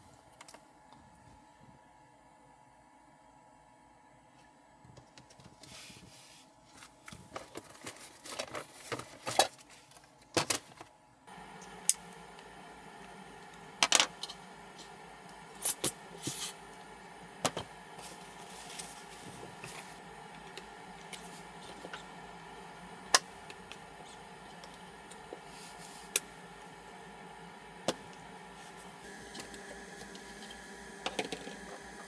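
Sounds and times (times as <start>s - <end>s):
low hum with faint whine: 10.1s - 32.0s.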